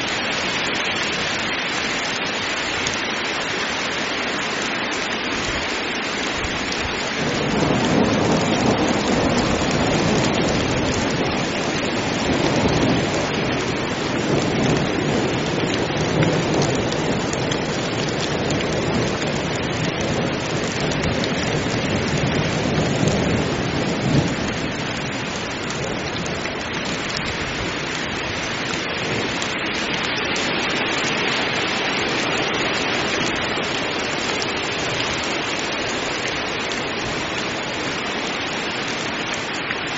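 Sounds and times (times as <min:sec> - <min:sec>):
heavy rain falling: 0:00.0 - 0:39.9
low rolling thunder: 0:07.2 - 0:27.8.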